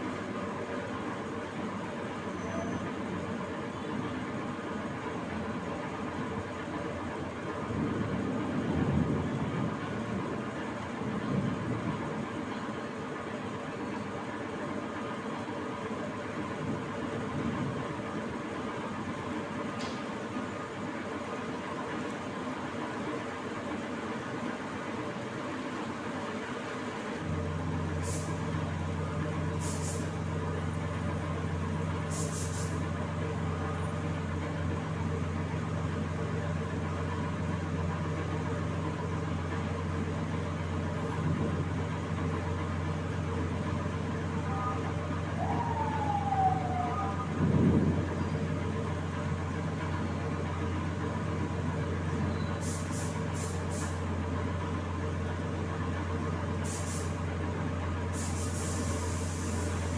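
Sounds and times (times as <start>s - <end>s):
falling whistle: 2.2s - 3.0s, 44.5s - 47.4s
air compressor hum: 27.2s - 30.4s, 32.0s - 32.9s, 52.6s - 54.1s, 56.6s - 57.2s, 58.1s - 59.9s
compressed air hisses: 28.0s - 28.4s, 29.6s - 30.2s, 32.1s - 32.8s, 52.6s - 54.0s, 56.6s - 57.2s, 58.1s - 59.9s.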